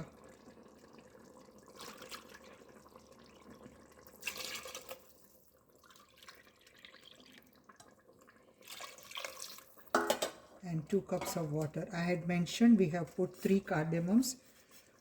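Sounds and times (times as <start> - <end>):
water pouring into pot: 0.0 - 11.8.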